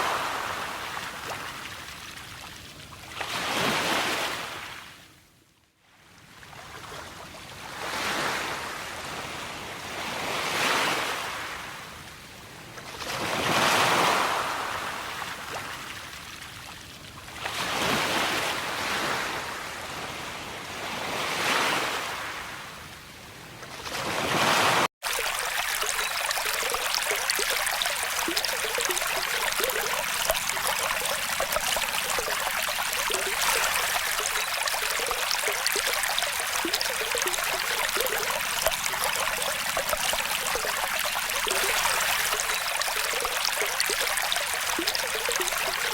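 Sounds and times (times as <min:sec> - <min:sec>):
waves washing up: 0:00.0 - 0:01.4
trickling running water: 0:25.0 - 0:45.9.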